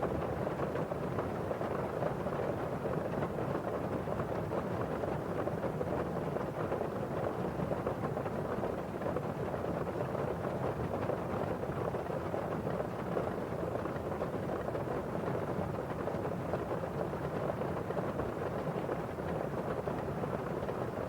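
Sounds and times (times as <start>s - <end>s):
rain on a windowpane: 0.0s - 21.0s.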